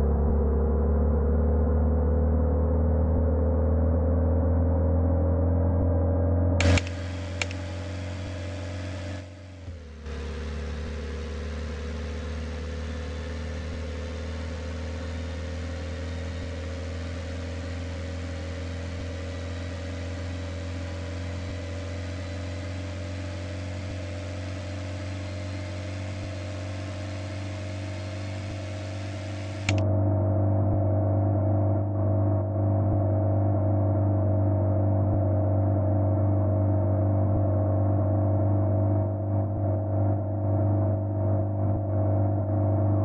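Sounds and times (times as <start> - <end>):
car engine idling: 6.6 - 29.8.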